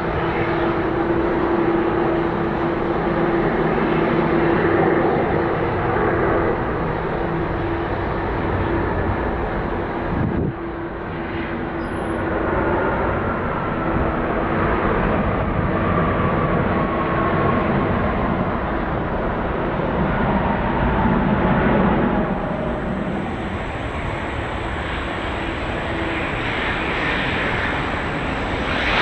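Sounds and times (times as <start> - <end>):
jet engines roaring: 0.0 - 29.0.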